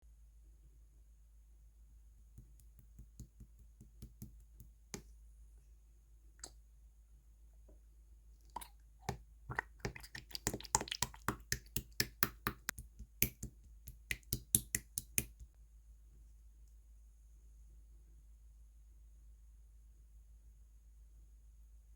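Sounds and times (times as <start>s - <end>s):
slime squished by hand: 8.5s - 15.5s.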